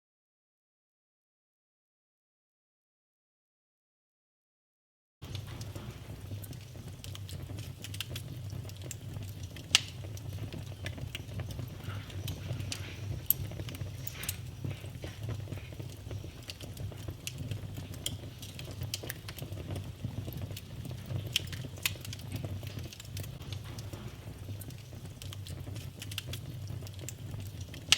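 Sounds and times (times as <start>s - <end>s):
wood fire crackling: 5.2s - 27.9s.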